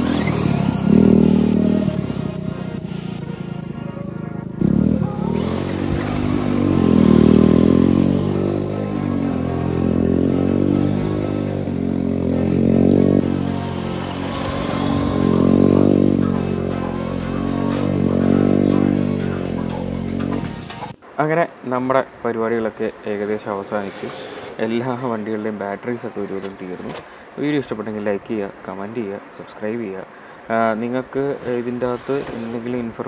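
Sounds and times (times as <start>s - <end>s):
rc car motor revving: 0.0s - 3.8s, 4.6s - 20.4s, 22.8s - 26.9s, 31.2s - 33.0s.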